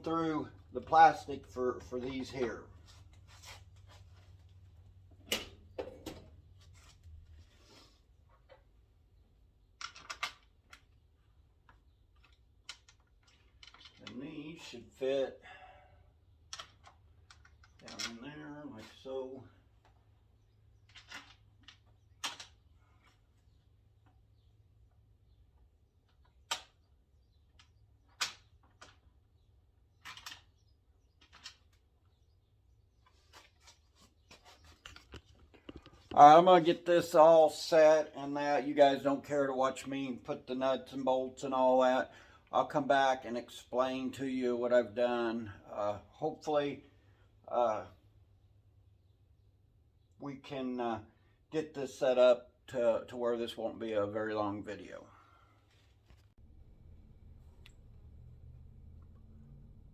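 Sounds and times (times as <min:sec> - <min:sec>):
sharp clicks and knocks of parts: 0:05.1 - 0:06.4, 0:09.7 - 0:14.3, 0:16.4 - 0:18.3, 0:20.8 - 0:22.7, 0:26.0 - 0:29.2, 0:30.0 - 0:31.9
faint low hum: 0:56.4 - 0:59.9.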